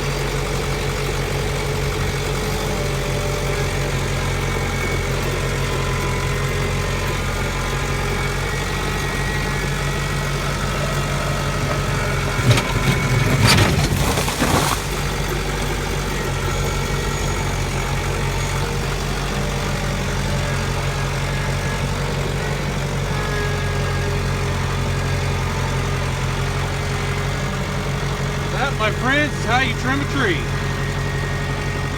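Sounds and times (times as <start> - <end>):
engine idling: 0.0 - 31.9
loud knocks and crashes: 11.8 - 15.9.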